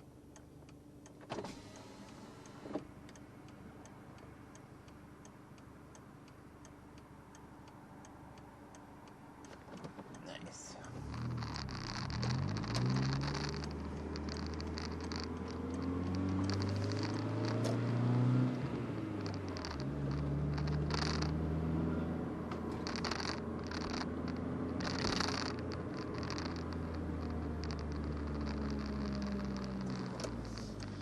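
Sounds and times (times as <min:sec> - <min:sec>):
car engine accelerating: 0:10.7 - 0:31.0.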